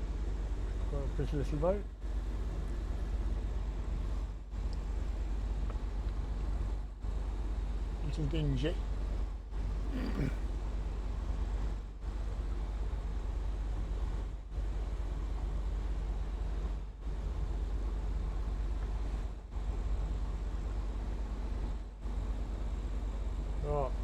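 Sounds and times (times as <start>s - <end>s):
boat engine droning: 0.0s - 10.6s.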